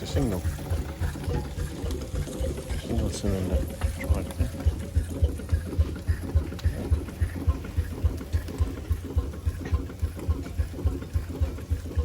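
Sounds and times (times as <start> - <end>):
steam traction engine running: 0.0 - 12.0.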